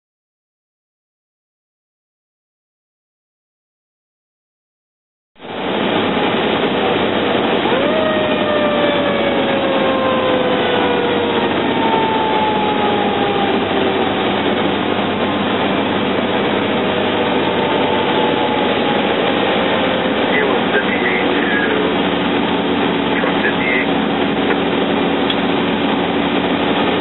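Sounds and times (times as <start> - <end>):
fire truck engine and road noise: 5.4 - 27.0
siren: 7.2 - 23.8.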